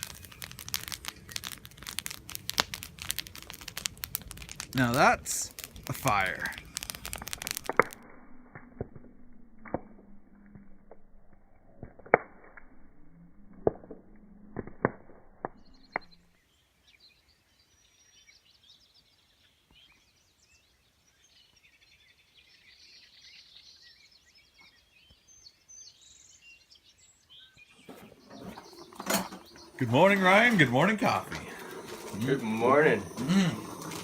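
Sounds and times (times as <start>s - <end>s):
campfire crackling and popping: 0.0s - 16.3s, 27.8s - 34.0s
faint birdsong: 15.6s - 34.0s.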